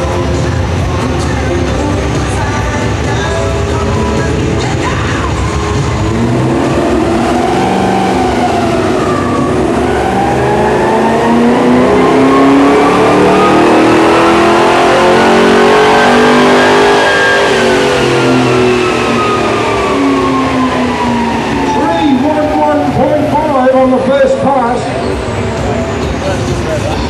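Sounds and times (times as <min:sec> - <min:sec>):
car engine revving on a dyno: 0:04.2 - 0:26.7.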